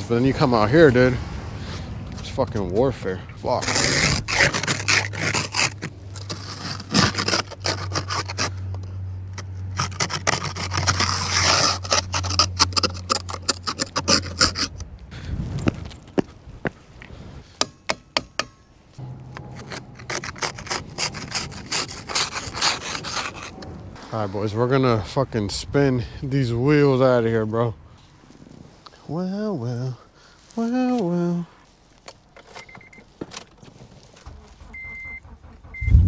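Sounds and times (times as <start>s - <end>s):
snow brushed and scraped off car: 0.0s - 15.9s, 19.0s - 32.9s
low steady hum: 34.3s - 36.0s.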